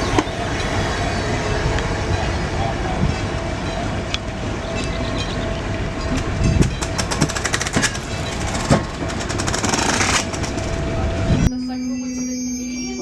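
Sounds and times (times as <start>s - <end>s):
train rumbling on tracks: 0.0s - 13.0s
wheel clicks and rattles: 6.8s - 10.7s.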